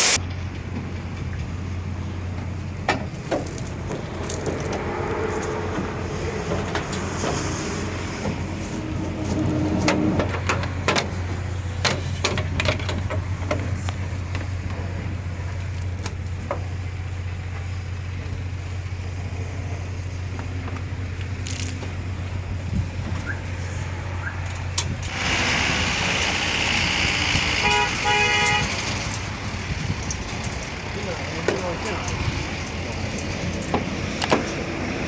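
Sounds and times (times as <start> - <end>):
sharp knocks and clanks: 2.4 - 14.9, 30.0 - 34.9
motor humming: 22.0 - 31.4.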